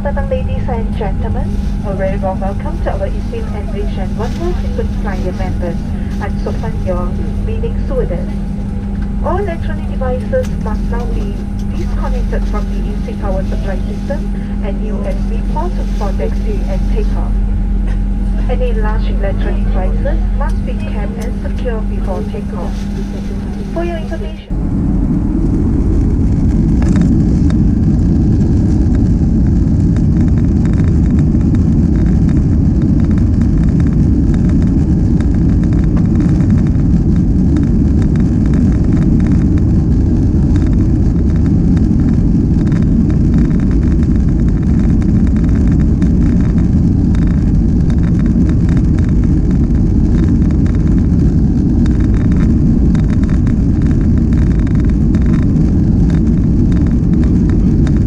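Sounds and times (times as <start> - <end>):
jet engines rumbling in cabin: 0.0 - 58.0.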